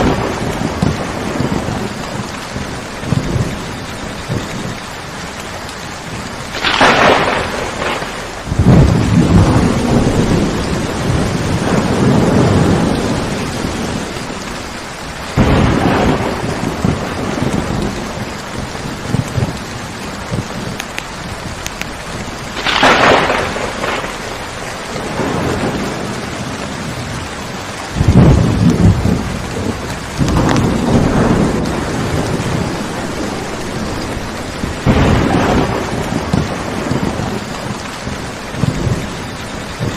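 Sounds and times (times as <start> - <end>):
heavy rain: 0.0 - 39.9
thunder cracks and rumbles: 0.0 - 39.9.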